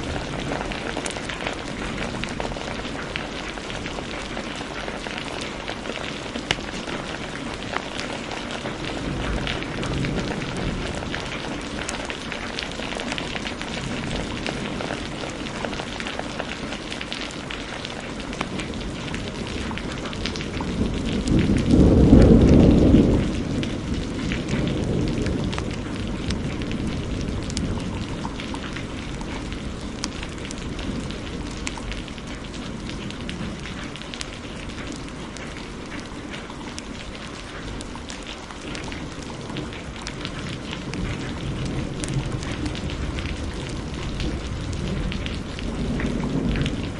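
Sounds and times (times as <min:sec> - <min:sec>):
heavy rain: 0:00.0 - 0:46.9
thunder rumbling: 0:00.0 - 0:46.9
wood fire crackling: 0:00.0 - 0:46.9.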